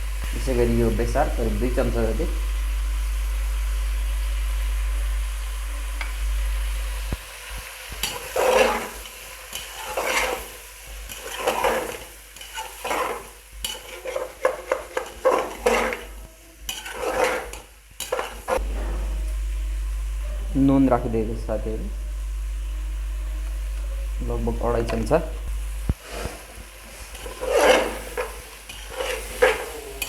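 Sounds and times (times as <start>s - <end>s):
steady low hum: 0.0s - 8.2s, 18.6s - 26.0s
meat sizzling: 0.0s - 30.0s
spoon stirring and scraping pot: 7.9s - 19.2s, 25.9s - 30.0s.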